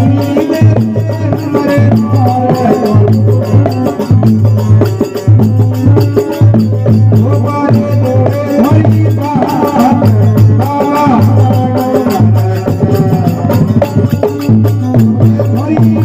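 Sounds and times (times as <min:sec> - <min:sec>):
devotional folk song: 0:00.0 - 0:04.5, 0:06.9 - 0:16.0
steady percussion beat: 0:00.0 - 0:16.0.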